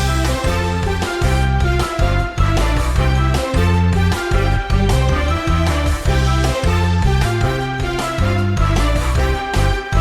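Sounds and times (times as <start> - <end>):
upbeat cartoon music: 0.0 - 10.0.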